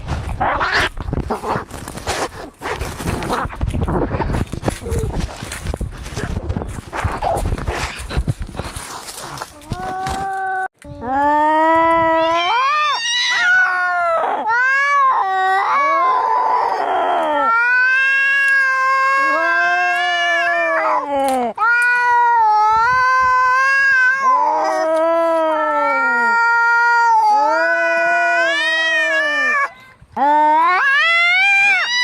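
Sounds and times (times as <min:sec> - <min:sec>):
cats yowling in a fight: 0:12.0 - 0:29.8, 0:30.6 - 0:32.0.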